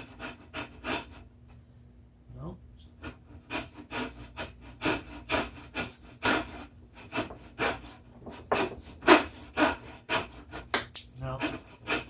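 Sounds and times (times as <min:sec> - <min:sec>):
hand tool rasping strokes: 0:03.1 - 0:12.0.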